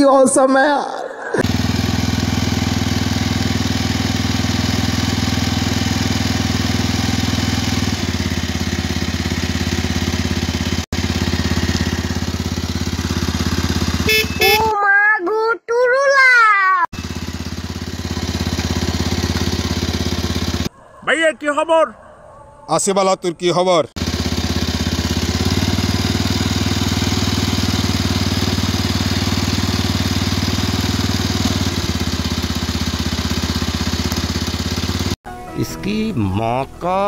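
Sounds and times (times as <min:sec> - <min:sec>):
motorcycle engine running: 0:01.4 - 0:14.7, 0:16.9 - 0:20.7, 0:24.0 - 0:35.2.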